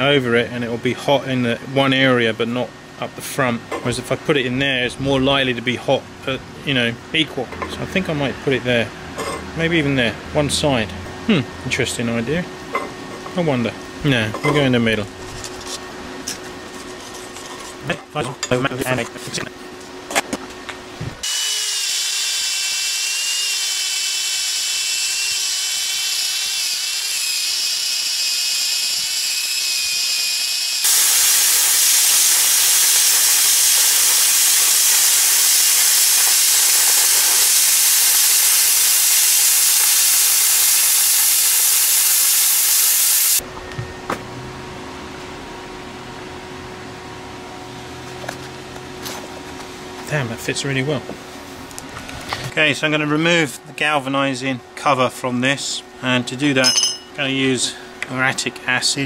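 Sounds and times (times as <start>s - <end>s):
power tool cutting steel plate: 21.2s - 43.4s.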